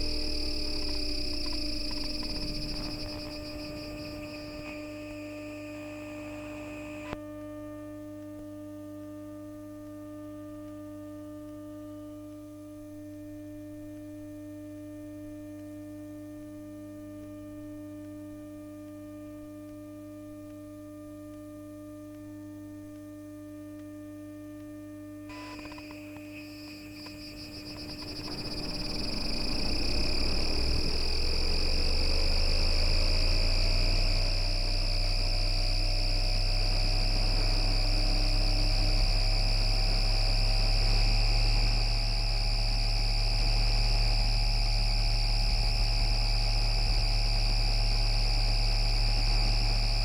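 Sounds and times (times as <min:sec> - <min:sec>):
high electrical whine: 0:00.0 - 0:07.6, 0:24.9 - 0:50.0
steady electrical hum: 0:00.0 - 0:14.0, 0:19.8 - 0:50.0.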